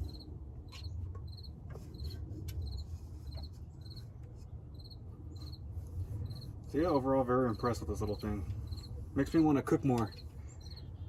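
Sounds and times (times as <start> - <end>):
cricket chirping: 0.0 - 2.8, 4.7 - 5.6, 8.7 - 8.9.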